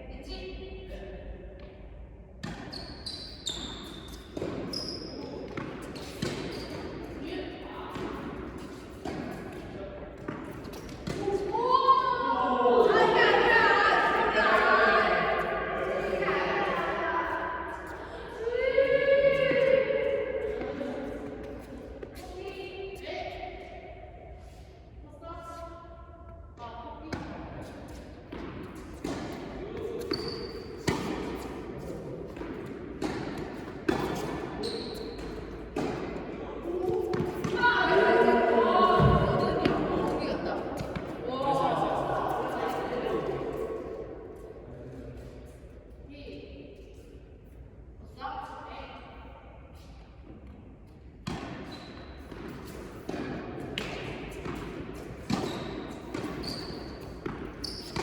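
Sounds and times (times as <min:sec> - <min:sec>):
tennis ball bouncing: 0:04.1 - 0:11.6, 0:27.1 - 0:41.3, 0:51.2 - 0:58.0
racket striking tennis ball: 0:05.5 - 0:07.2, 0:07.9 - 0:11.5, 0:28.3 - 0:37.6, 0:51.2 - 0:58.0.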